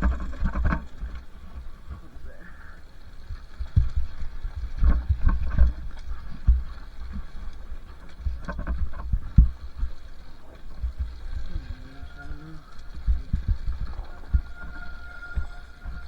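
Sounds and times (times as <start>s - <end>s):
dirt bike engine rumbling: 0.0s - 16.0s
wind on microphone: 0.0s - 16.0s.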